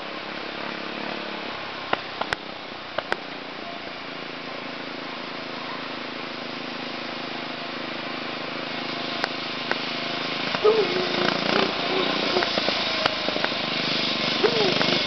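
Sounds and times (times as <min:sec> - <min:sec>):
distant small engine running: 0:00.0 - 0:15.0.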